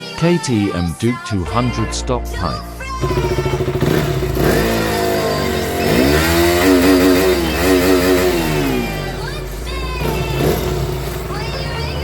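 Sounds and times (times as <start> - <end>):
motorcycle engine revving: 2.9 - 12.0.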